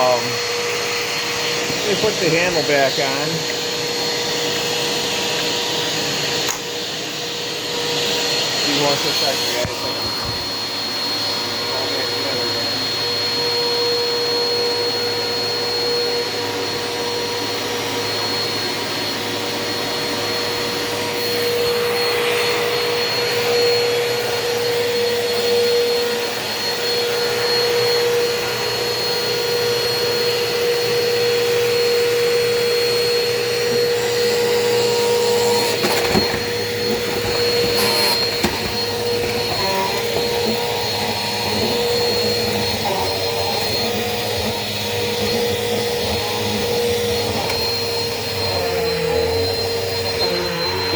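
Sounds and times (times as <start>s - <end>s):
vacuum cleaner running: 0.0s - 50.9s.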